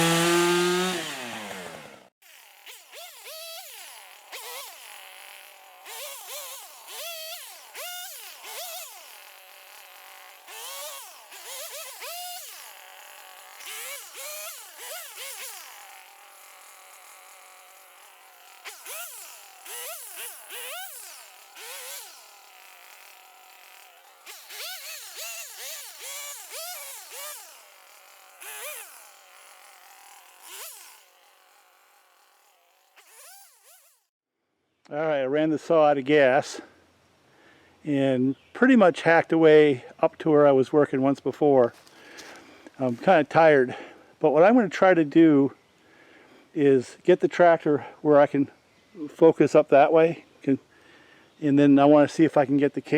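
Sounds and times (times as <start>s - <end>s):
chainsaw revving while cutting: 0.0s - 34.1s.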